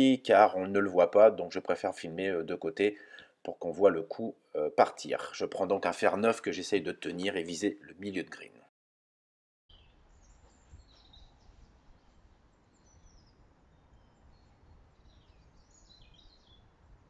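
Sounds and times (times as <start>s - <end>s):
small birds chirping: 9.7s - 16.8s.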